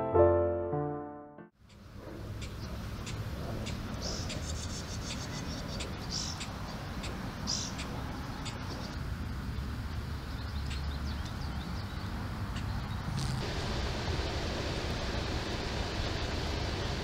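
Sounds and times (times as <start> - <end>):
small birds chirping: 2.4 - 13.4
steady low rumble: 12.7 - 17.0.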